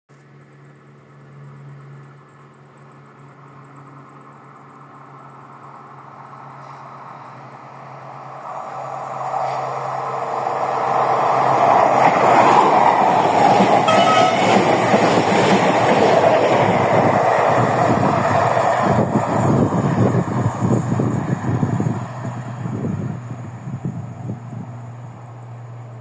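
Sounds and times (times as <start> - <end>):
train passing rumble: 1.2 - 26.0
short high tone: 13.9 - 14.8.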